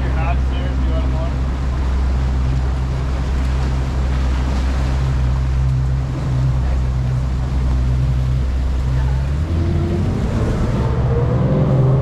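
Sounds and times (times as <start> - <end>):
motorboat engine drone: 0.0 - 12.0
water noise: 0.0 - 12.0
rushing wind: 1.3 - 12.0.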